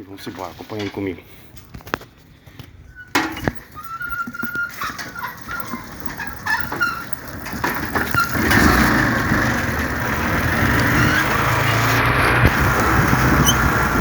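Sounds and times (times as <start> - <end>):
chickens clucking: 3.7 - 10.6
motorcycle engine running: 5.6 - 14.0.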